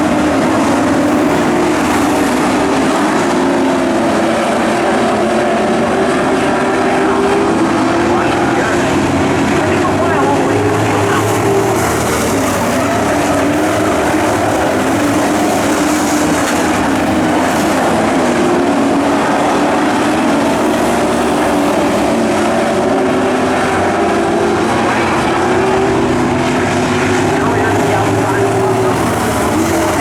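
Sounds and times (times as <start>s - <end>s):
racing truck engines droning: 0.0s - 30.0s.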